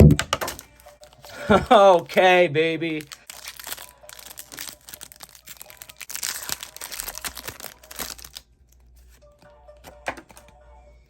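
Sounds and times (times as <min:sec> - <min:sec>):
foil wrapper crinkling: 0:02.9 - 0:09.2.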